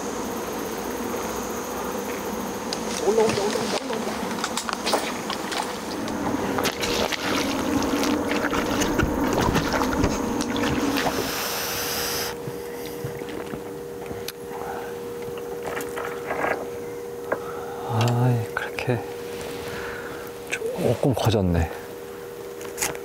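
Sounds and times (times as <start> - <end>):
low two-note hum: 3.0 - 20.9
water splashing: 6.6 - 11.3.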